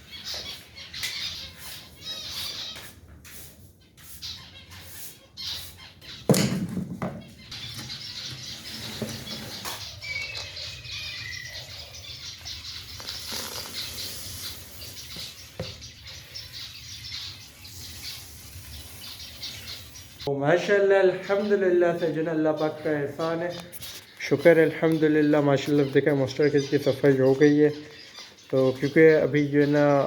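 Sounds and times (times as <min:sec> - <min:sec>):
cage birds chirping: 0:00.0 - 0:30.0
sharp knocks: 0:06.3 - 0:07.3.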